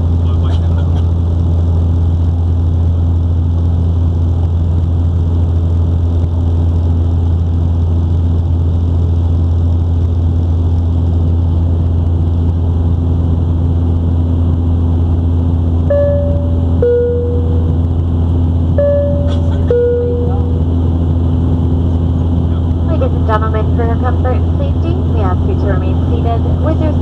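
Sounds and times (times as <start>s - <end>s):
airplane cabin drone: 0.0s - 27.0s
cabin chime: 15.9s - 17.7s, 18.8s - 20.5s.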